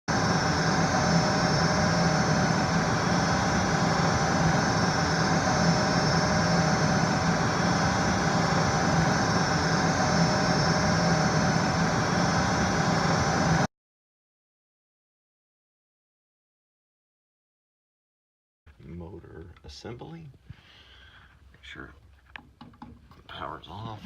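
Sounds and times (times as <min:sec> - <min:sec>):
fan humming and whirring: 0:00.1 - 0:13.7.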